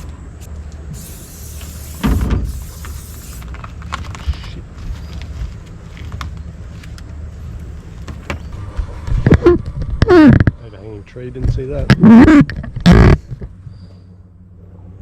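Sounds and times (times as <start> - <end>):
boat motor humming: 0.0 - 15.0
loud thump: 2.0 - 2.6.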